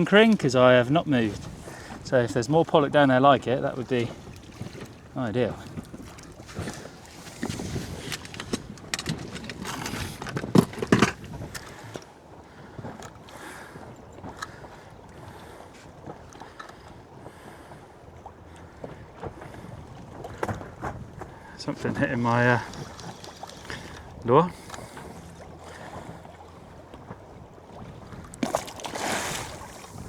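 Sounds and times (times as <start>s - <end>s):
water lapping against boat hull: 0.0s - 30.0s
wind on microphone: 4.0s - 12.0s, 18.8s - 30.0s.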